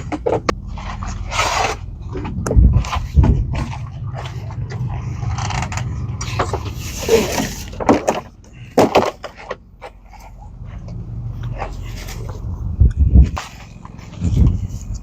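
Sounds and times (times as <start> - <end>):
camp gear knocking and clattering: 0.0 - 12.4
steady low rumble: 0.0 - 15.0.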